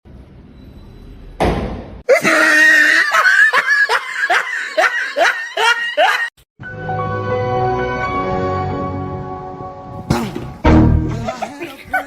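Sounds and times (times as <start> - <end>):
person laughing hard: 2.1 - 6.3, 11.1 - 12.0.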